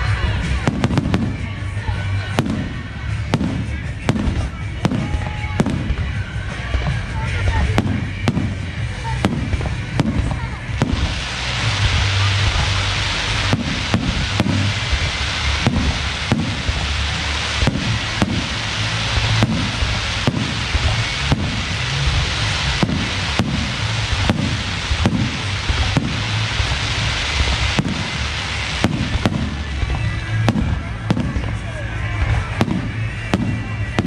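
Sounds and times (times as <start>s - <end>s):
crackling hiss: 0.0s - 34.0s
low booming rumbles: 0.0s - 34.0s
firework shells bursting: 7.8s - 31.6s.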